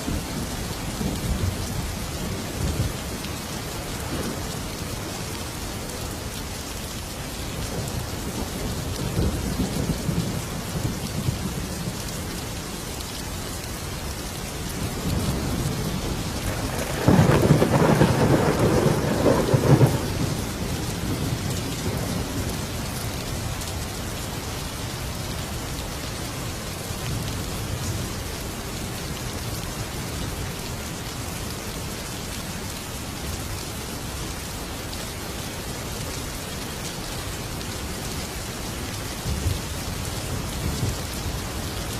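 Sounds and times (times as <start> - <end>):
heavy rain: 0.0 - 41.9
thunder rumbling: 14.8 - 22.9
loud crack of thunder: 16.4 - 22.2.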